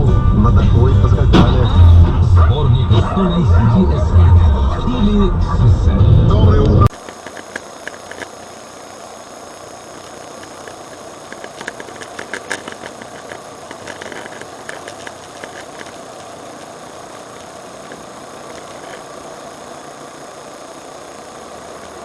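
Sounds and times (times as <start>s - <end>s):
car running noise: 0.0s - 8.4s, 9.9s - 19.2s
sharp irregular clicks and knocks: 6.9s - 8.4s, 10.0s - 16.8s, 17.4s - 19.1s.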